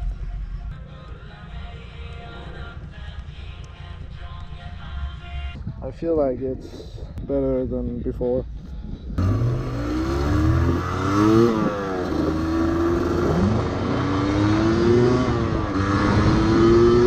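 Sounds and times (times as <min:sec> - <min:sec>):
motorcycle engine accelerating: 0:09.1 - 0:17.0.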